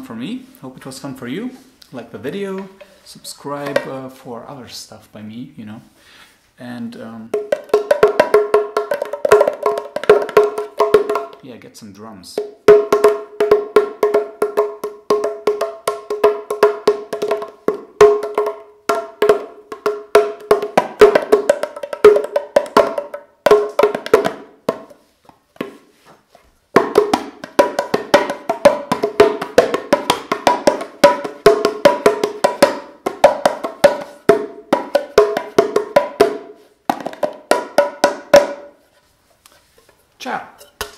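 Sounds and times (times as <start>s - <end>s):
small clay drums fast rhythm: 7.3s - 11.4s, 12.4s - 24.9s, 26.7s - 38.7s.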